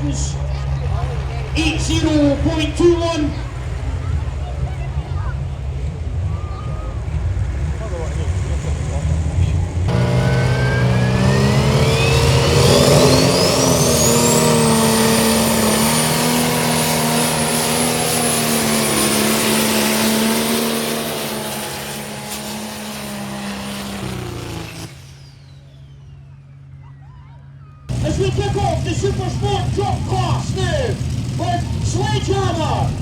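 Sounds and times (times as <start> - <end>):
engine running hard: 0.0 - 25.7, 27.5 - 33.0
high whine rising in pitch: 9.9 - 25.8.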